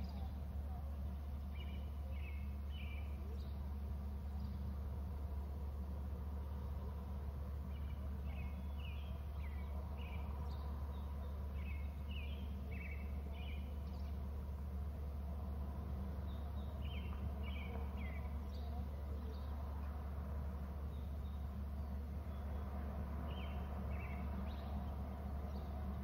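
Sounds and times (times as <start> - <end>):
steady low hum: 0.0 - 26.0
bird chirping: 1.3 - 3.6, 7.7 - 14.2, 16.2 - 19.6, 23.2 - 25.9.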